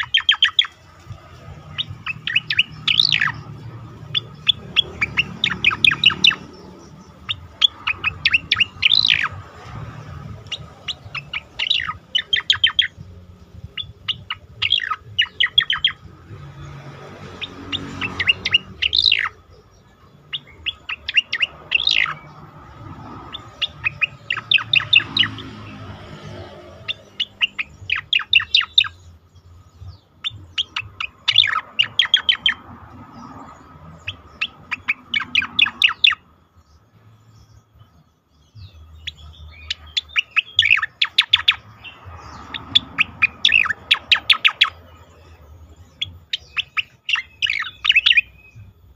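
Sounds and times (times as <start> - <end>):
bird chirping: 0.0 - 48.9.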